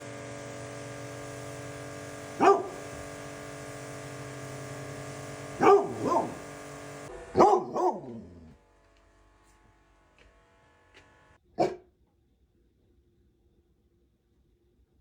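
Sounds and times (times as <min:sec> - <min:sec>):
steady hum: 0:00.0 - 0:07.6
dog barking: 0:02.4 - 0:02.8, 0:05.6 - 0:06.5, 0:07.3 - 0:08.5, 0:11.6 - 0:11.9.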